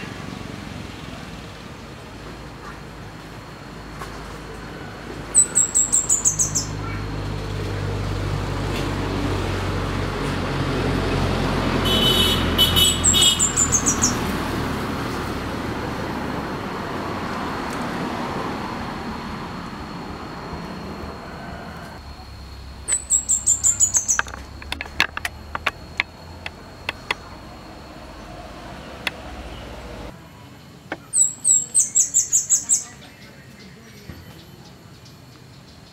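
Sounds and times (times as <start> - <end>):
passing vehicle rumble: 0.0 - 30.4
bird singing rapid high notes: 5.4 - 7.0, 12.8 - 14.2, 22.8 - 24.8.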